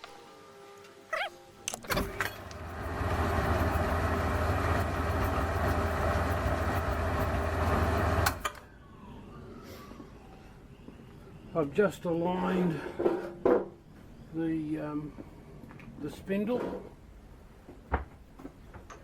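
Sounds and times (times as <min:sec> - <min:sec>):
electric motor humming: 0:01.8 - 0:08.5.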